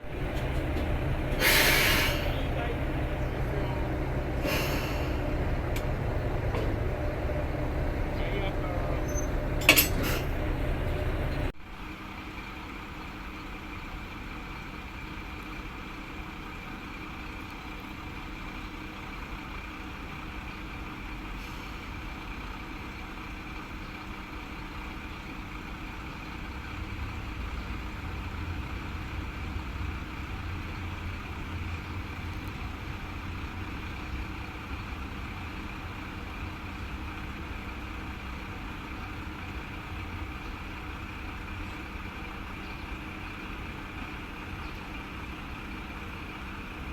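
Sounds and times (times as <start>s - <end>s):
constant high whine: 0.0s - 21.3s
deep engine rumble: 0.0s - 46.9s
diesel engine idling: 0.0s - 46.9s.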